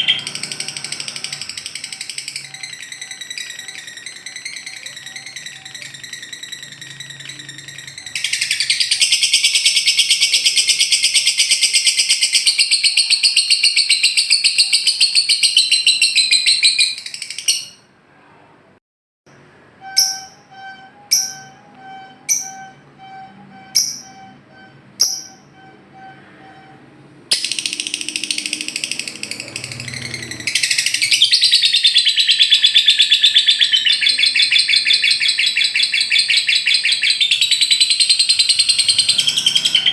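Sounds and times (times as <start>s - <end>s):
buzzy trilling bird chatter: 0.0s - 17.8s, 27.3s - 39.9s.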